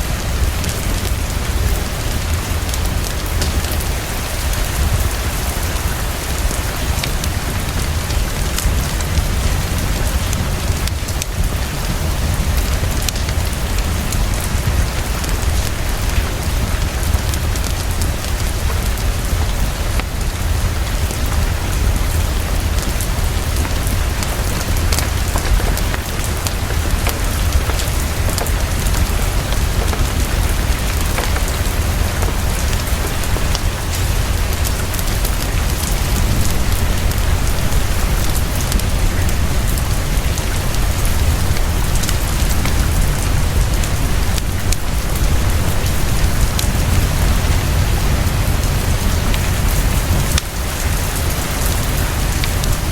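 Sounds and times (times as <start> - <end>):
heavy rain pattering: 0.0 - 52.9
fine crackling ticks: 23.6 - 34.0.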